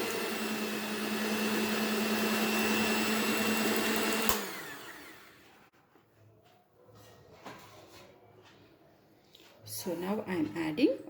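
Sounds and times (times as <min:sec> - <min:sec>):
electric hand mixer whining: 0:00.0 - 0:05.6.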